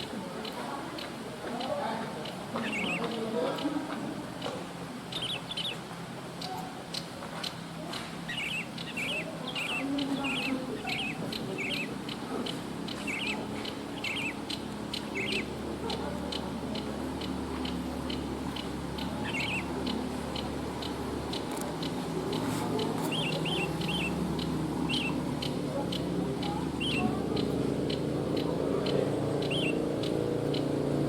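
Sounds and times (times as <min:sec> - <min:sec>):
birds chirping: 0:00.0 - 0:31.0
sharp ticks: 0:00.4 - 0:31.0.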